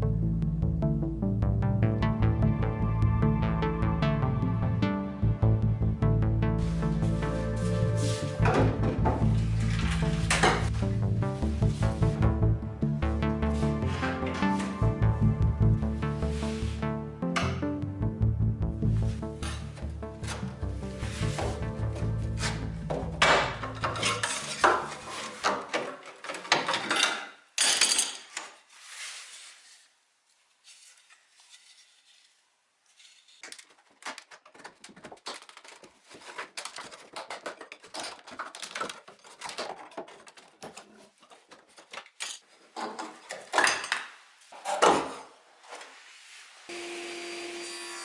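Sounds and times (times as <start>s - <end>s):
background music: 0.0s - 25.4s
scraping sweeps: 6.6s - 8.4s
hard objects clinking and rattling: 23.2s - 28.3s, 33.4s - 44.0s.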